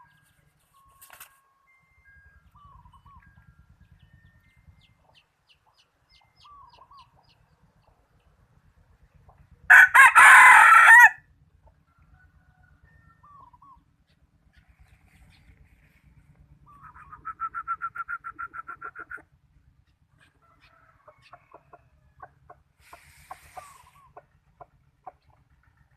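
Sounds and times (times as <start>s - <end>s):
rooster crowing: 9.7s - 11.3s, 20.4s - 22.3s
short bird calls: 14.5s - 19.3s, 22.8s - 24.3s.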